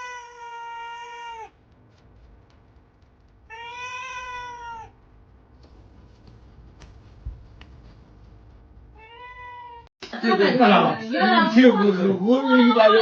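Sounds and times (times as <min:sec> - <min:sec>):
cat meowing: 0:00.0 - 0:01.6, 0:03.5 - 0:05.0, 0:09.0 - 0:09.9.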